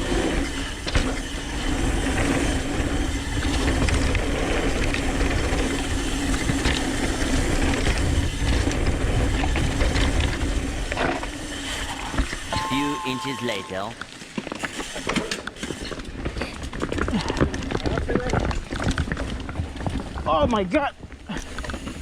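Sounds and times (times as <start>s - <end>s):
bicycle hub freewheel buzzing: 0.0s - 12.5s
wind: 0.0s - 22.0s
bike knocking and rattling: 0.1s - 12.5s, 14.0s - 22.0s.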